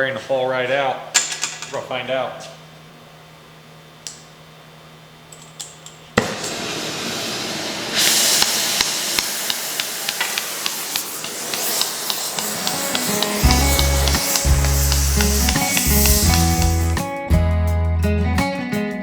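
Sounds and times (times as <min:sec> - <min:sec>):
torch flame hissing: 0:06.2 - 0:17.0
torch lighting pop: 0:06.2 - 0:17.0
small metal ticks: 0:11.5 - 0:16.7.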